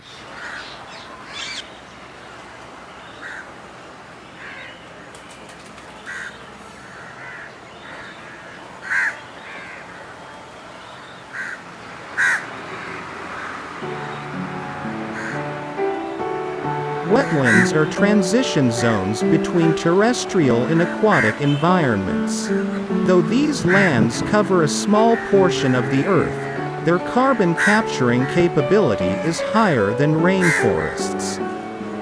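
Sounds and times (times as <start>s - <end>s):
wild birds calling: 0.0s - 1.9s, 4.4s - 10.0s, 10.8s - 32.0s
outdoor background noise: 0.0s - 32.0s
music: 13.8s - 32.0s.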